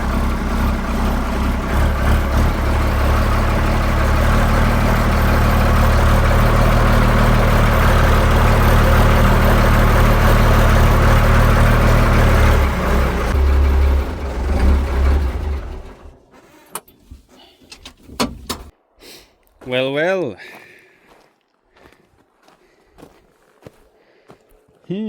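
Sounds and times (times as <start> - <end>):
engine running: 0.0 - 16.3.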